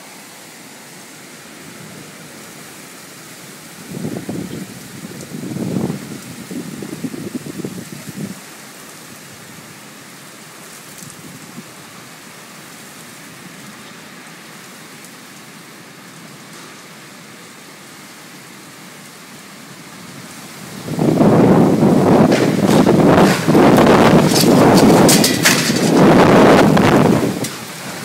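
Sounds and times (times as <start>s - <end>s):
heavy rain hiss: 0.0s - 28.0s
low thunder rumble: 20.7s - 28.0s.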